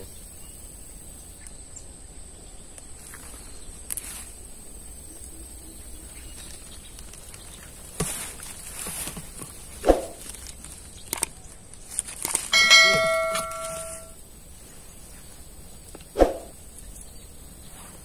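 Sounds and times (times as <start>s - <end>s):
knocks and clicks: 12.2s - 14.1s
bell-like metallic ring: 12.5s - 14.2s.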